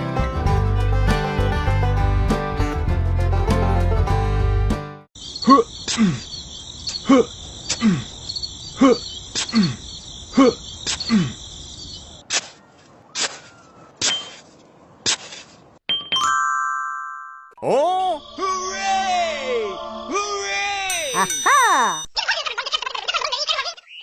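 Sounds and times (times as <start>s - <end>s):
crickets chirping: 5.2s - 12.2s.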